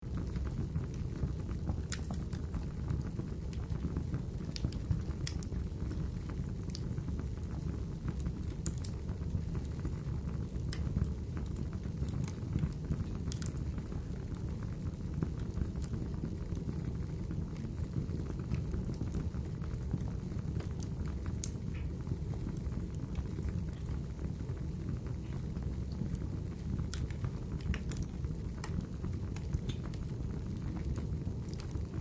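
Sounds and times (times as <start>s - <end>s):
wood fire crackling and popping: 0.0s - 32.0s
rainfall: 10.8s - 32.0s.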